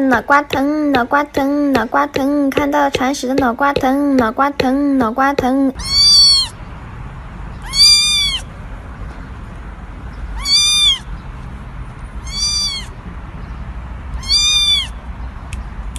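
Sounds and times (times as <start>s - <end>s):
cat meowing: 5.8s - 6.6s, 7.6s - 8.5s, 10.4s - 11.1s, 12.2s - 13.0s, 14.2s - 15.0s.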